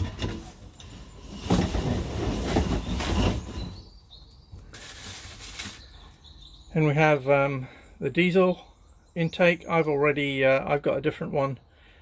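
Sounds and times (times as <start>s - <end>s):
packaging rustling: 4.7s - 6.0s.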